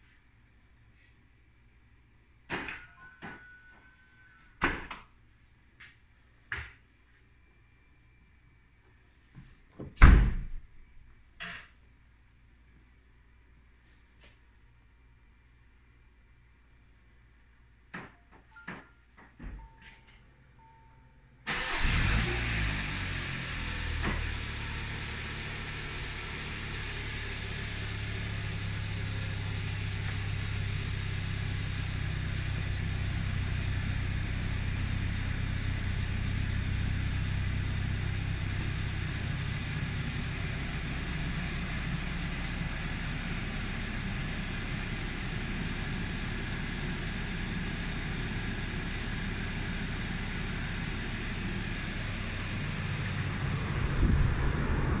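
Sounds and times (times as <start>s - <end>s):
car engine starting and idling: 21.2s - 55.0s.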